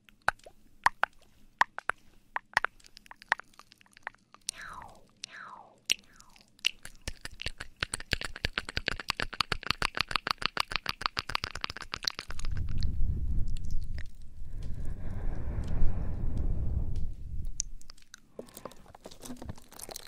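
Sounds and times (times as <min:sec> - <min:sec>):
short falling swish: 0:14.4 - 0:17.8.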